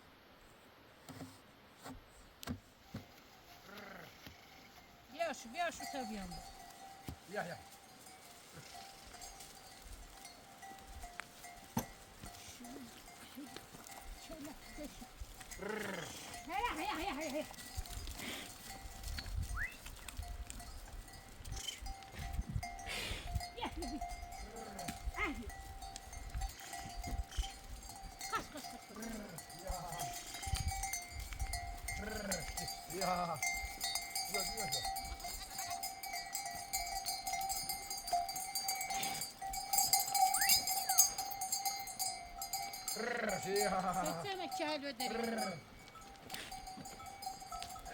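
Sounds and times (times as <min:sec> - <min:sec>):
livestock bells ringing: 0:04.7 - 0:47.9
wavering bleat: 0:15.5 - 0:17.4, 0:31.9 - 0:33.4, 0:42.9 - 0:45.7.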